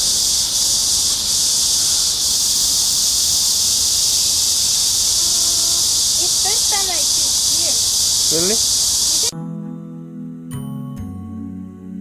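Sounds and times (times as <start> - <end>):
cicadas buzzing: 0.0 - 9.3.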